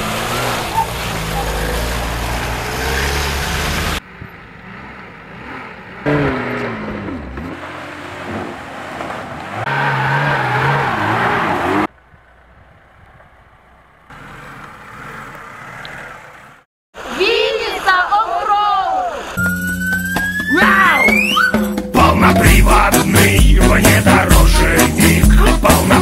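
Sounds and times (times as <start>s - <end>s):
car engines revving: 0.0s - 17.9s.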